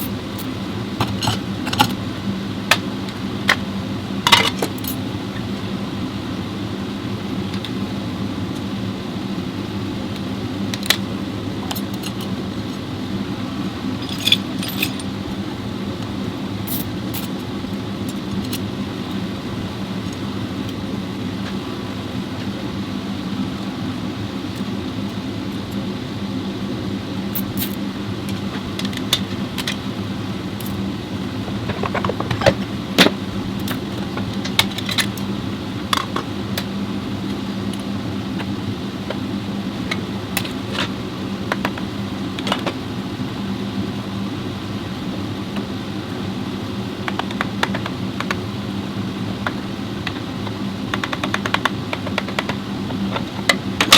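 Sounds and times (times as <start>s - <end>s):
low machine hum: 0.0s - 53.9s
metallic clinks of tools: 14.0s - 15.1s.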